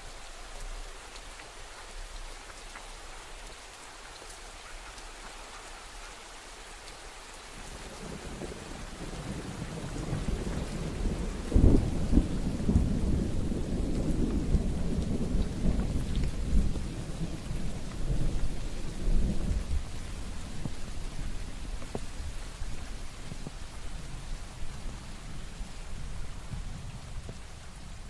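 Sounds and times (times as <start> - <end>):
steady rain: 0.0 - 28.0
thunder rumbling: 7.6 - 28.0.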